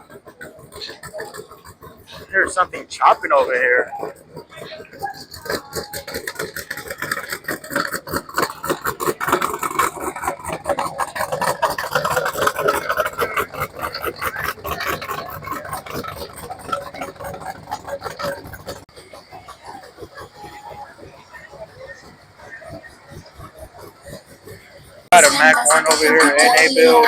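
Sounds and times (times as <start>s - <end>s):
car engine idling roughly: 0.0s - 27.0s.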